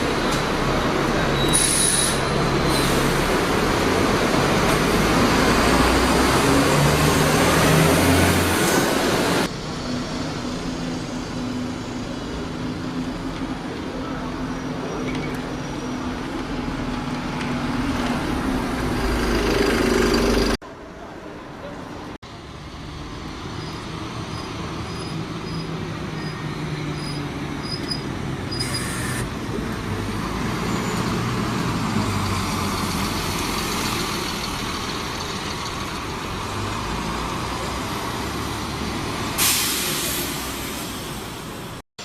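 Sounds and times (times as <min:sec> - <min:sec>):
traffic: 0:00.0 - 0:41.8
brief high squeal: 0:01.3 - 0:03.0
loud vehicle passing: 0:02.4 - 0:10.4.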